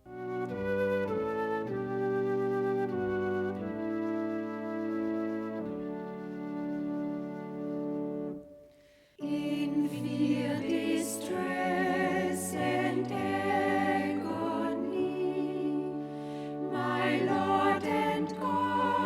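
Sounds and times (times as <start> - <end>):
choir singing a hymn: 9.2 - 19.0
held low accompanying notes: 9.2 - 19.0.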